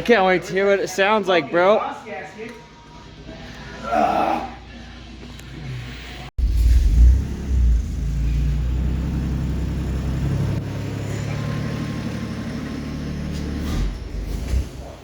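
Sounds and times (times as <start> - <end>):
car engine idling: 6.4 - 14.1.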